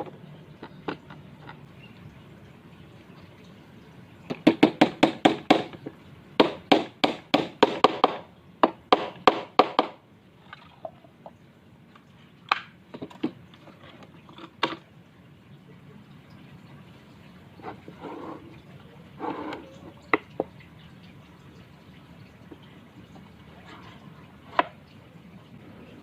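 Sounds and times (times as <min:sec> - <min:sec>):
rapid knocking on wood: 0:04.3 - 0:05.7, 0:06.4 - 0:10.0.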